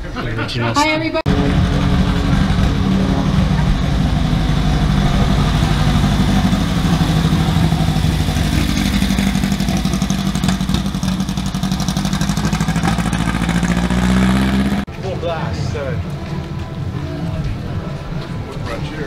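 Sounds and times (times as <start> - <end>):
car engine running at low revs: 1.3 - 14.9.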